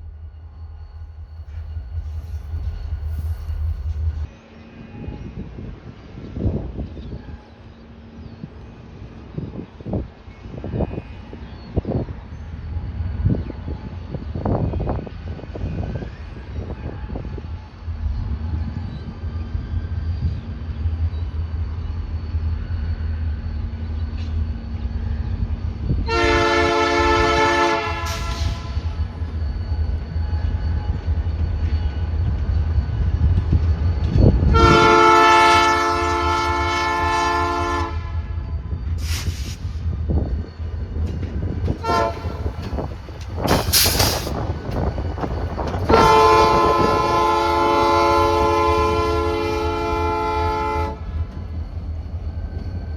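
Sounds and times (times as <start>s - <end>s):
locomotive rumble: 0.0s - 52.9s
wind: 0.0s - 52.9s
locomotive air horn blasts: 26.1s - 28.9s, 34.5s - 38.4s, 41.8s - 42.4s, 45.9s - 51.1s.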